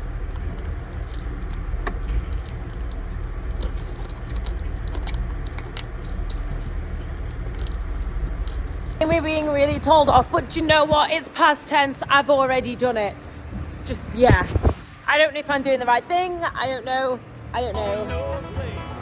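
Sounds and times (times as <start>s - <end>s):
light rattles and clicks: 0.0s - 11.2s
farm vehicle engine rumbling: 0.0s - 19.0s.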